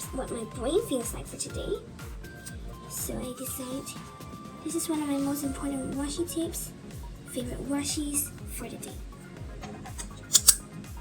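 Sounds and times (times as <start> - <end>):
background music with steady beat: 0.0 - 11.0
scissors snipping tape: 9.6 - 10.6.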